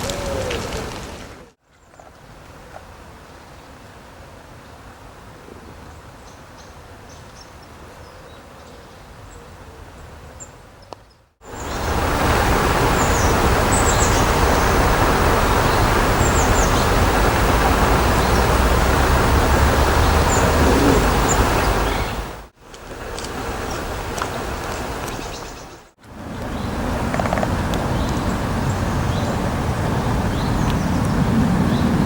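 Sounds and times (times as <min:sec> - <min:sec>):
steady rushing noise: 0:11.4 - 0:32.0
small birds chirping: 0:12.8 - 0:22.4.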